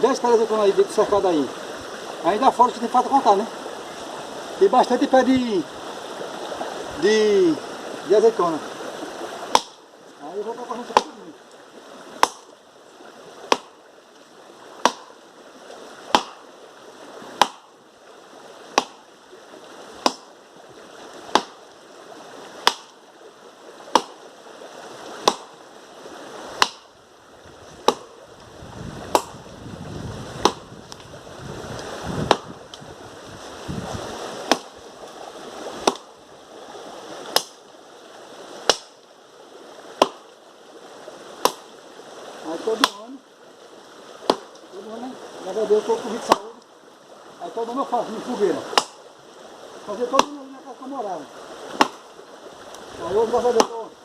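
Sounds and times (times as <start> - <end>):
faint hiss: 0.0 - 54.0
wood being chopped: 9.4 - 9.8, 10.9 - 11.2, 12.2 - 12.5, 13.5 - 13.8, 14.8 - 15.1, 16.1 - 16.4, 17.4 - 17.7, 18.7 - 19.0, 20.0 - 20.3, 21.3 - 21.6, 22.6 - 23.0, 23.9 - 24.2, 25.2 - 25.6, 26.6 - 26.9, 27.8 - 28.2, 29.0 - 29.4, 30.4 - 31.0, 32.2 - 32.6, 34.4 - 34.8, 35.8 - 36.1, 37.3 - 37.6, 38.6 - 39.0, 40.0 - 40.3, 41.4 - 41.7, 42.8 - 43.1, 44.2 - 44.6, 46.2 - 46.6, 48.7 - 49.0, 50.1 - 50.5, 51.7 - 52.1, 53.4 - 53.9.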